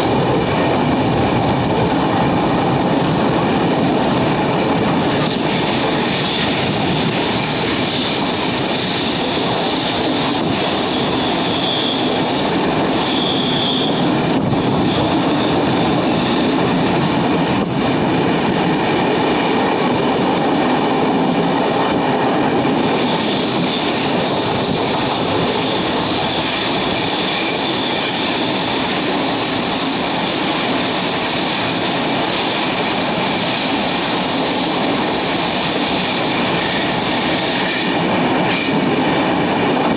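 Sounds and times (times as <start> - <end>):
train wheels rumbling on rails: 0.0 - 39.9
high wheel squeal: 5.4 - 16.7, 22.6 - 38.8.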